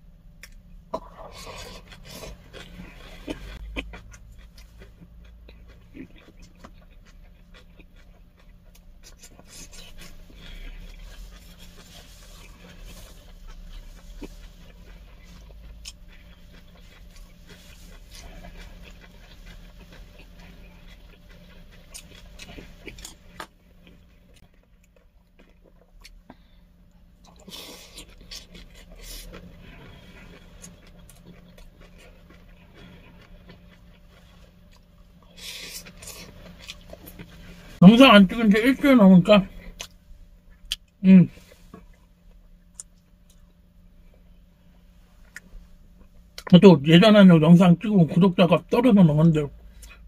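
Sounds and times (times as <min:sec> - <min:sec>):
person chewing: 0:00.2 - 0:44.5, 0:45.2 - 0:46.5, 0:49.6 - 0:50.0
breathing: 0:26.2 - 0:26.8.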